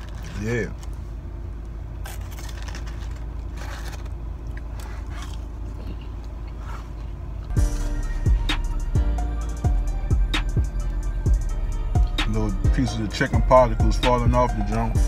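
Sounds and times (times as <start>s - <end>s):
crunching fried chicken: 0.0s - 1.0s, 2.0s - 6.4s
low hum in car cabin: 0.0s - 15.0s.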